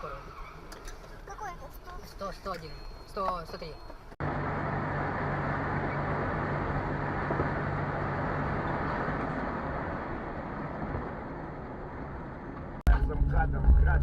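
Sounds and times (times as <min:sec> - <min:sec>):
car road noise and engine drone: 0:03.1 - 0:14.0.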